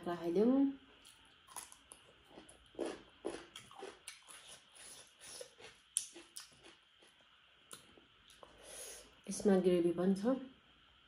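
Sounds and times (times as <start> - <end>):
crunching raw cucumber: 1.0 - 7.9.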